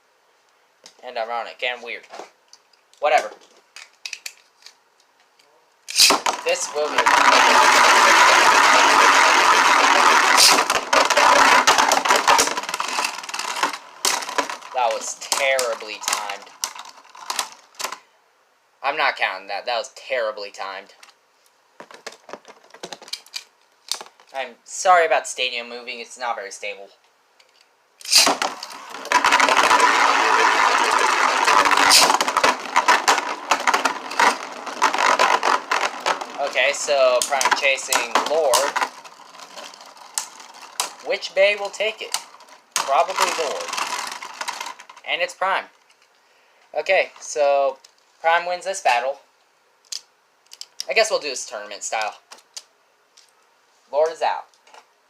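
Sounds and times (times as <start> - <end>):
ripcord rip: 5.9 - 17.4, 28.0 - 44.9
spinning tops clacking: 5.9 - 18.0, 28.0 - 45.1
spinning tops whirring and scraping: 5.9 - 18.0, 28.0 - 45.3.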